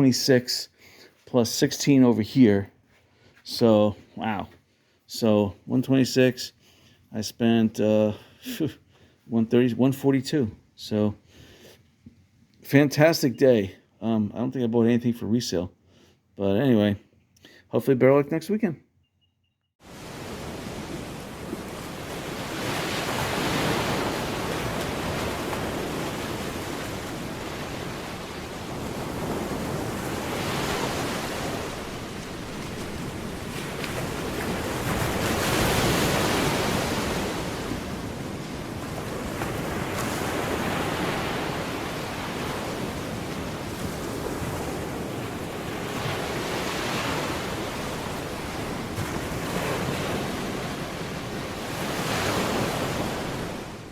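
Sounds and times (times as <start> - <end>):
waves breaking and washing in: 19.8 - 53.9.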